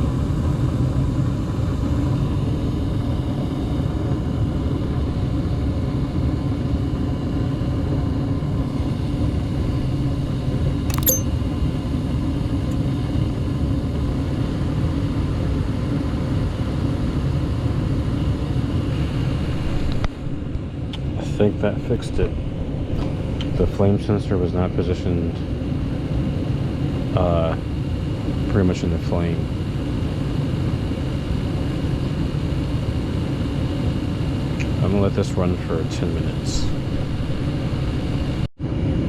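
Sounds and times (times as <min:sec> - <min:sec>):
gas furnace running: 0:00.0 - 0:39.0
sharp click: 0:10.9 - 0:11.3.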